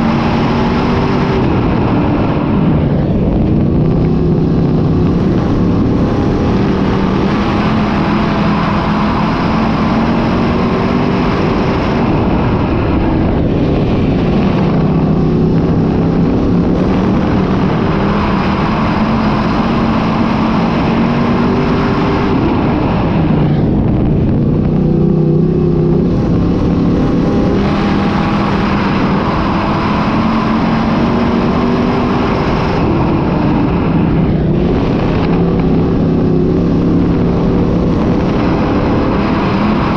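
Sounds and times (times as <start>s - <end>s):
race car engines running hard: 0.0s - 39.9s.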